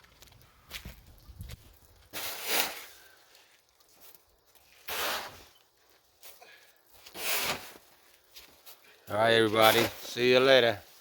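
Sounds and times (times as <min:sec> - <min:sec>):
snow shovel scraping snow: 0:02.1 - 0:03.2, 0:04.8 - 0:05.6, 0:07.0 - 0:07.9, 0:09.5 - 0:11.0.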